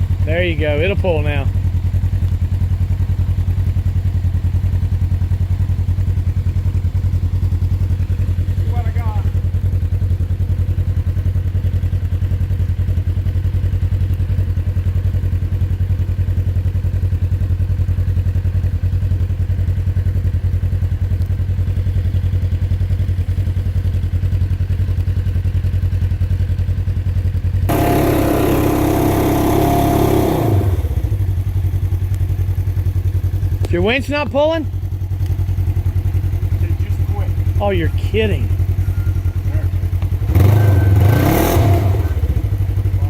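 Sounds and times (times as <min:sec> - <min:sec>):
vehicle engine idling: 0:00.0 - 0:43.0
electric winch whirring: 0:27.7 - 0:30.6.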